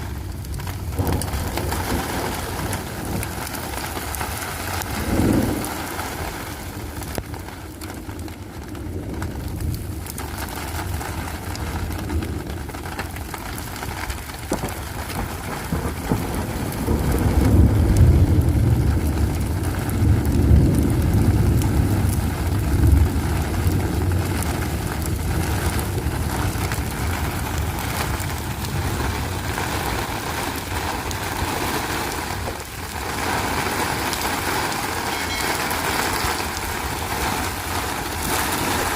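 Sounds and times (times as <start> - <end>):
low rumble: 0.0 - 14.1
steady rain: 0.0 - 38.9.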